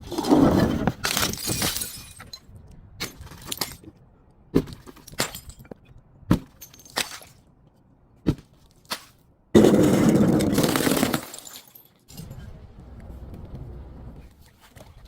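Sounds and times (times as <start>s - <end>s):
sharp cracks of glass: 1.0s - 2.4s
glass bottle crunching and shattering: 1.0s - 3.8s, 9.6s - 12.0s.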